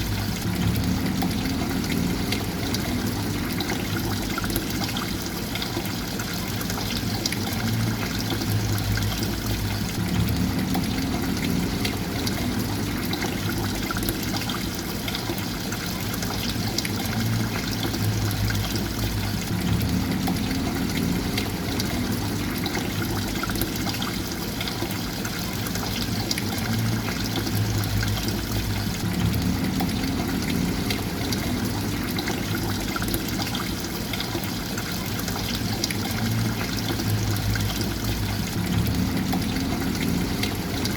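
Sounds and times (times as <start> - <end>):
water flowing and trickling: 0.0 - 40.9.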